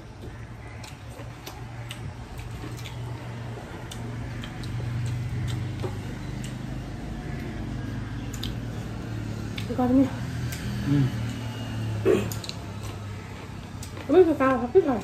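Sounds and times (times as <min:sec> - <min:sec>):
wet mouth clicks chewing: 0:00.3 - 0:07.6, 0:08.3 - 0:08.7.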